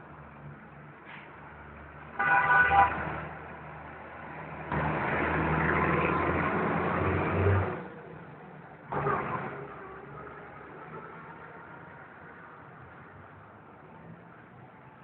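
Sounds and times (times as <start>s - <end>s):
vehicle passing by: 3.9s - 8.0s.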